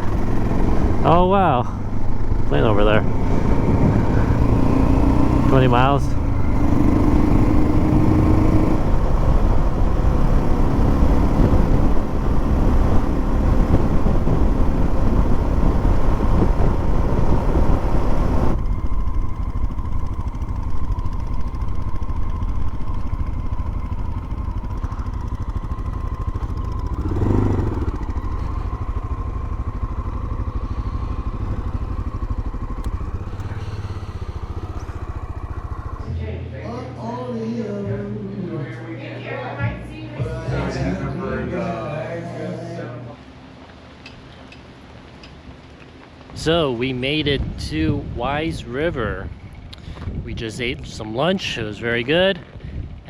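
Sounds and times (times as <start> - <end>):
motorcycle engine at speed: 0.0 - 36.2, 43.2 - 53.0
engine and road rumble: 0.0 - 39.1, 39.7 - 53.0
wind noise on microphone: 1.8 - 21.8, 46.3 - 53.0.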